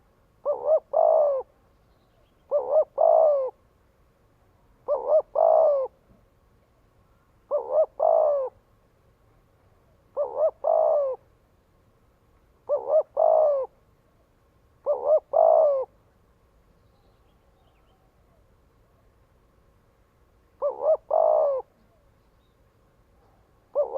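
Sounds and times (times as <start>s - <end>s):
dove cooing: 0.0s - 1.6s, 2.4s - 3.6s, 4.8s - 6.1s, 7.5s - 8.6s, 10.1s - 11.3s, 12.6s - 13.8s, 14.8s - 16.0s, 20.6s - 22.1s, 23.3s - 23.9s.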